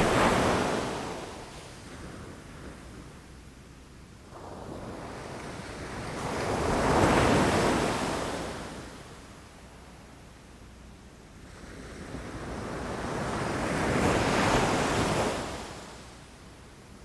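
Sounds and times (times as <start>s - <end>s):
low surf rumble: 0.0s - 0.4s
waves breaking against rocks: 0.0s - 0.9s.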